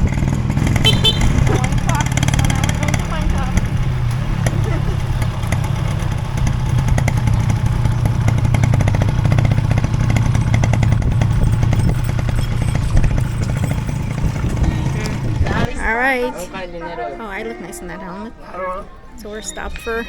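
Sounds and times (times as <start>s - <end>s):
motorcycle engine droning: 0.0s - 16.2s.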